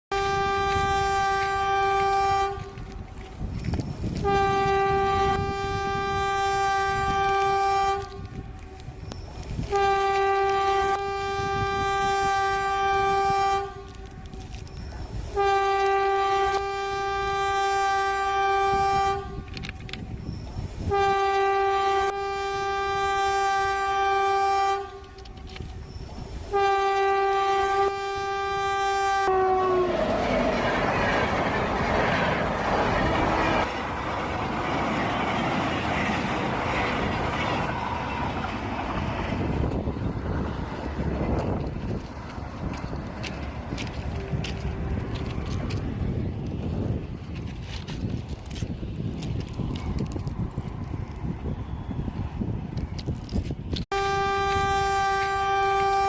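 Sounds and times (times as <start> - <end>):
train horn blasts: 0.1 - 30.1, 32.2 - 33.8, 42.7 - 46.7, 53.4 - 56.0
low rumble of running train: 0.1 - 56.0.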